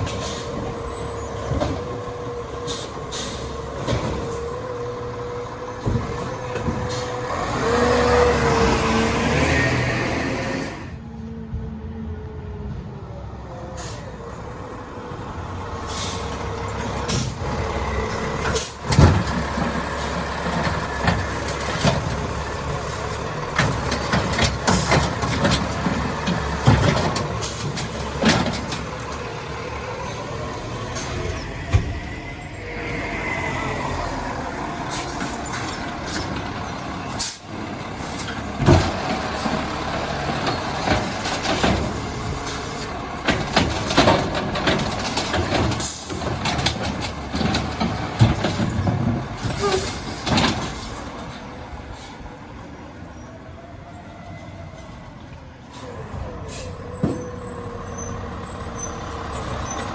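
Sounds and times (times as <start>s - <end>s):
truck engine and machinery running: 0.0s - 59.9s
sharp bangs and knocks: 18.3s - 29.6s, 34.8s - 51.2s.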